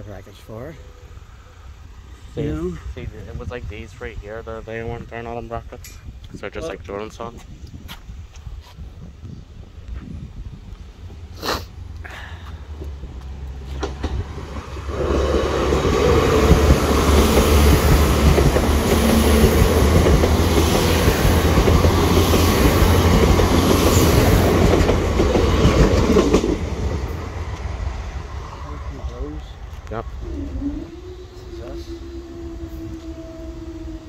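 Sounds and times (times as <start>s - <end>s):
train wheels rumbling and clattering: 12.7s - 34.0s.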